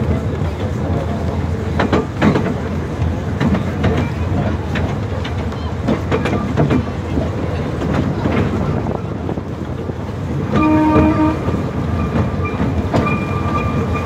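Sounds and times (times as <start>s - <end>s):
train rumbling along track: 0.0s - 14.0s
train wheel clicks: 0.0s - 14.0s
train horn: 10.5s - 11.7s.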